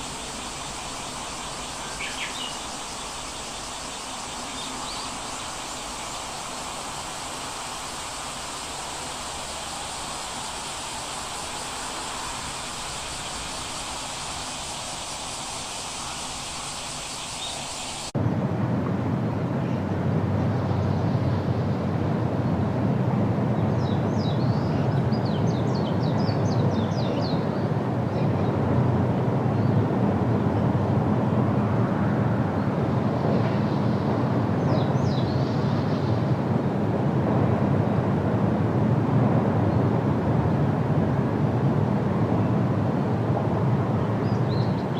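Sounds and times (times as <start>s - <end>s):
birds chirping: 0.0s - 6.3s
steady hissing noise: 0.0s - 18.2s
low outdoor rumble: 18.2s - 25.1s.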